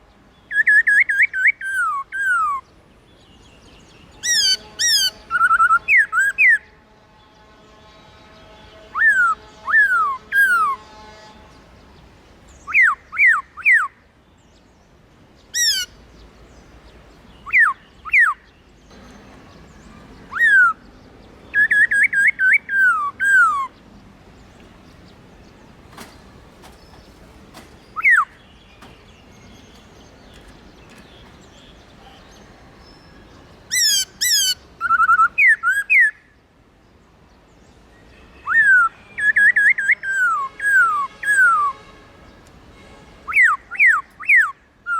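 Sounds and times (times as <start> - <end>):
bird singing whistled notes: 0.5 - 2.6, 17.3 - 23.8, 25.9 - 36.3, 38.1 - 41.9.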